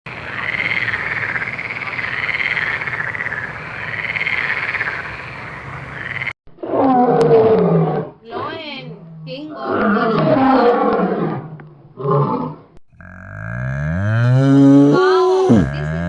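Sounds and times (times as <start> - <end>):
frogs croaking: 0.1 - 6.4
animal roar: 6.6 - 8.2, 9.0 - 16.0.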